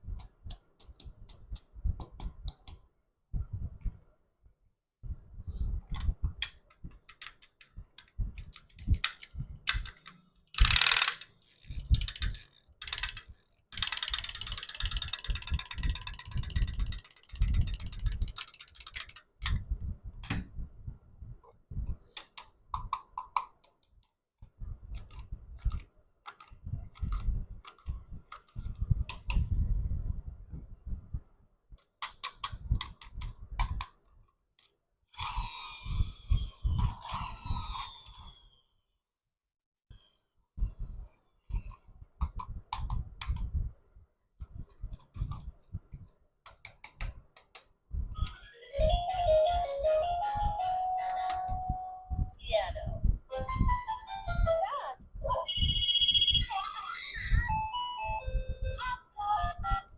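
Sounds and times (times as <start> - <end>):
plastic toys clicking and rattling: 6.5 - 19.4.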